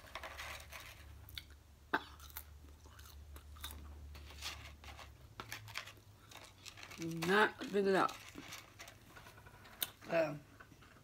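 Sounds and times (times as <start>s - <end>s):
chewing and mouth smacking: 1.3s - 3.9s.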